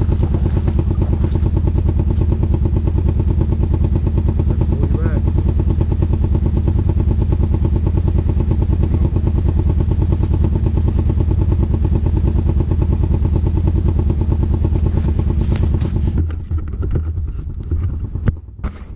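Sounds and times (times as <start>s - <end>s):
off-road vehicle engine running: 0.0s - 18.9s.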